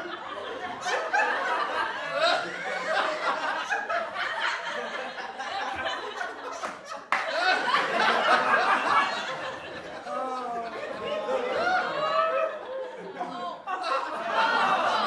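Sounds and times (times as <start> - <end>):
group of people laughing: 0.0 - 15.0.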